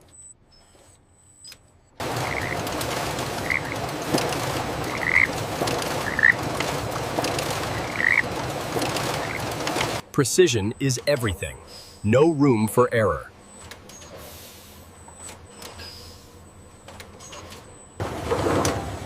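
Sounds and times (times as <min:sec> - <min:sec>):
frogs croaking in chorus: 0:02.0 - 0:02.7, 0:03.4 - 0:04.2, 0:04.8 - 0:05.4, 0:06.0 - 0:06.4, 0:07.6 - 0:08.3, 0:09.0 - 0:09.5.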